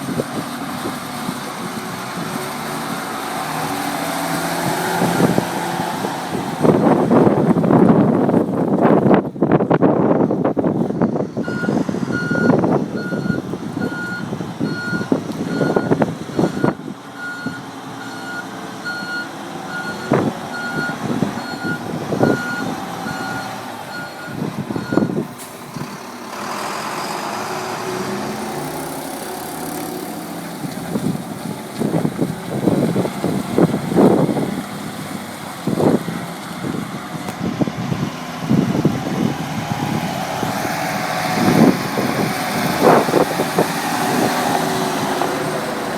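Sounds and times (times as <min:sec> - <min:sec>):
dump truck engine running: 0:00.0 - 0:45.9
reversing alarm beeping: 0:11.4 - 0:25.2.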